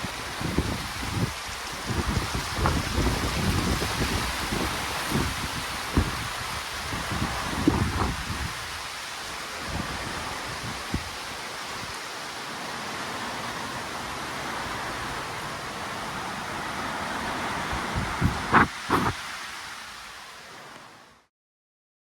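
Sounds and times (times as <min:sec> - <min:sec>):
wind buffeting microphone: 0:00.0 - 0:08.8, 0:09.6 - 0:11.2, 0:17.4 - 0:19.2
wind and rain rushing: 0:00.0 - 0:21.3.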